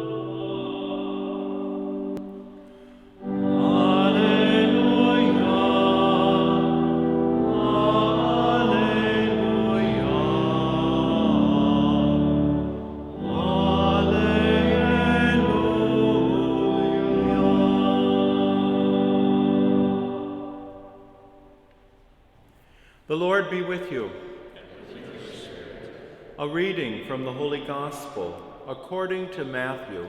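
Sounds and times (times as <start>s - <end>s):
organ-like chords: 0.0s - 21.7s
liturgical singing: 0.0s - 21.9s, 23.1s - 30.0s.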